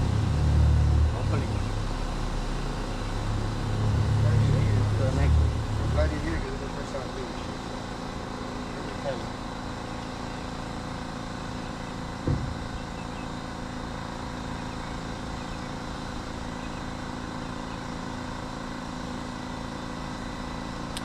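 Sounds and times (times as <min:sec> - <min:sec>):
engine idling: 0:00.0 - 0:21.0
thump: 0:12.2 - 0:12.7.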